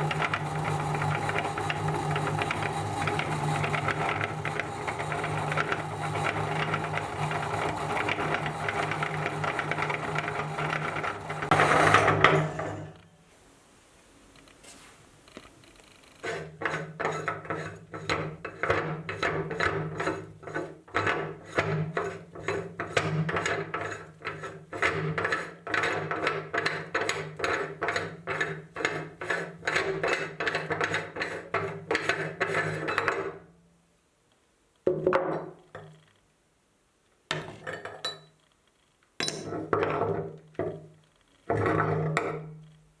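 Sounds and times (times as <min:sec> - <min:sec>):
meat grinder running: 0:00.0 - 0:12.2.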